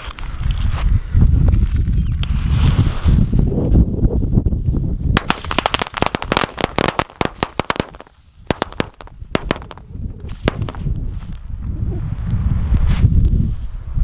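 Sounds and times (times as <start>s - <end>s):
firecrackers banging: 5.2s - 11.2s.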